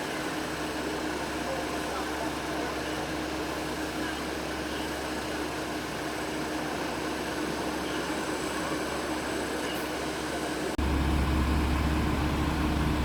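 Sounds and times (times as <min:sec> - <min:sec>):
vehicle road noise: 0:02.6 - 0:13.0.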